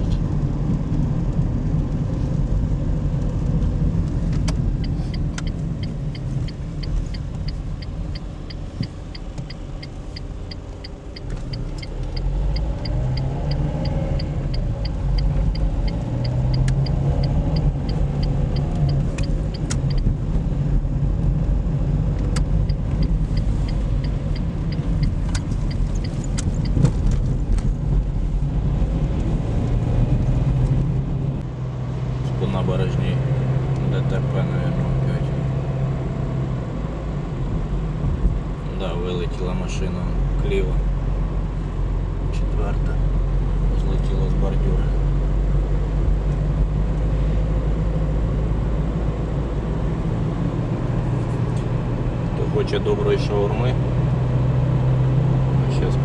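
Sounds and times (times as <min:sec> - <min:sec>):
car engine and road noise: 0:00.0 - 0:56.0
turn signal ticking: 0:04.1 - 0:27.7.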